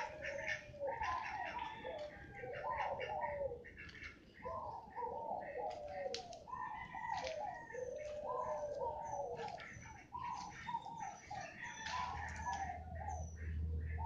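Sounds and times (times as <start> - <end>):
birds warbling calls: 0.0 - 14.0.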